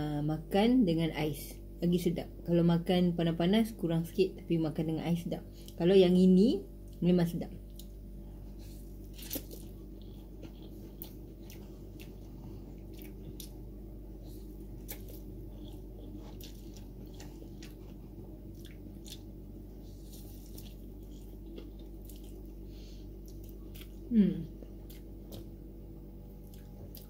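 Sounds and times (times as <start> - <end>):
low background hum: 0.0 - 27.0
soft chewing and mouth sounds: 6.8 - 27.0.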